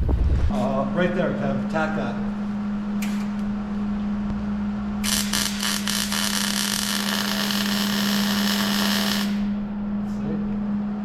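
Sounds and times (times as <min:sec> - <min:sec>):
impact wrench running: 0:05.0 - 0:09.6.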